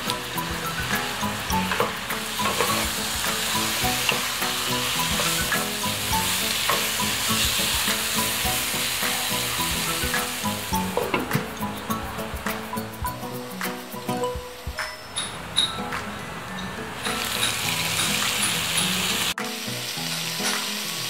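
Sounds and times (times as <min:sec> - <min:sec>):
chicken sizzling in a pan: 0:00.0 - 0:11.8, 0:17.0 - 0:21.0
spatula tapping and scraping pan: 0:00.0 - 0:11.8.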